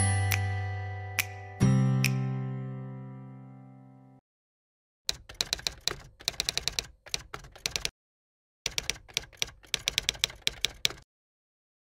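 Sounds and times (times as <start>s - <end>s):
typewriter keystrokes clicking: 5.1s - 7.9s, 8.7s - 11.0s.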